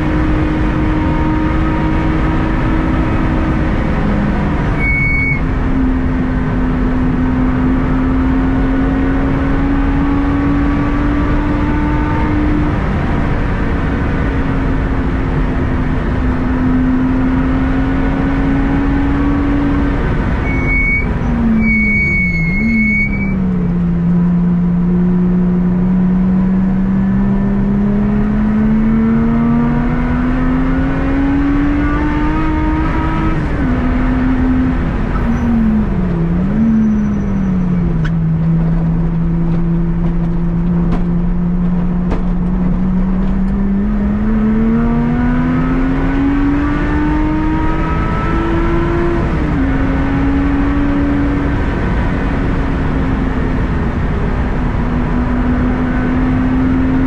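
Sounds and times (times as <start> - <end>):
car engine running: 0.0 - 57.0
high squeal: 4.8 - 5.5, 20.4 - 23.4, 35.1 - 35.8, 36.5 - 38.0.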